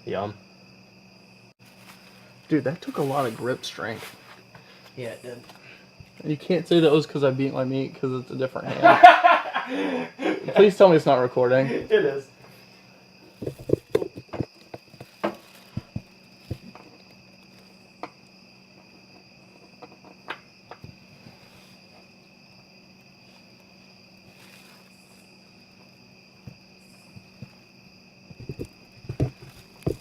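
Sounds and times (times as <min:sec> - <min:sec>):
small objects being handled: 0:13.3 - 0:17.8, 0:23.2 - 0:25.3.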